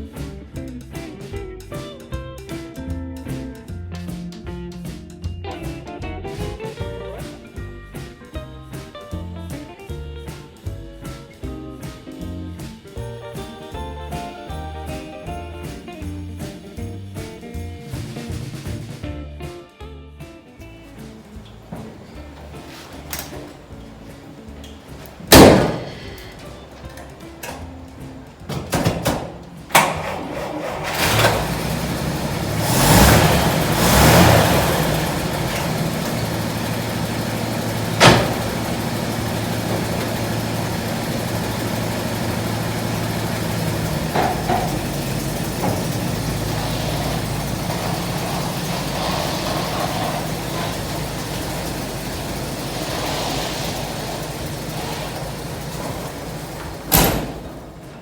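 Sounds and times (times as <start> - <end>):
pickup truck engine idling: 21.0 - 58.0.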